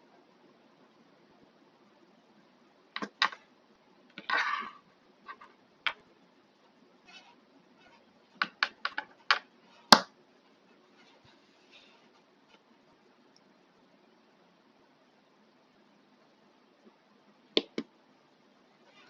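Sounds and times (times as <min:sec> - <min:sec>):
plastic parts clicking and tapping: 0:08.4 - 0:10.1.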